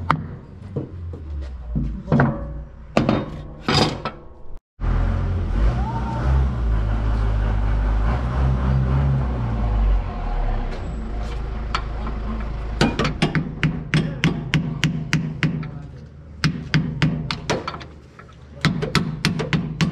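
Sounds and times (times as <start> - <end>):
sharp knocks: 12.8 - 15.8.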